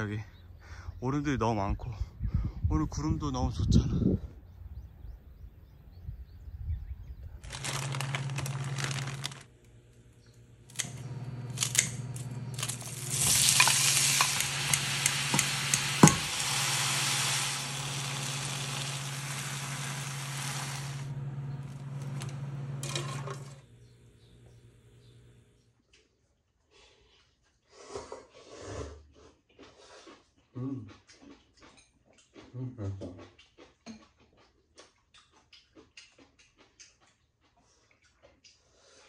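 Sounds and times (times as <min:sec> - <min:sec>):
steady low hum: 0:04.5 - 0:25.7
utensils clicking on pan: 0:11.6 - 0:21.0
fish cake sizzling in a pan: 0:12.6 - 0:21.2.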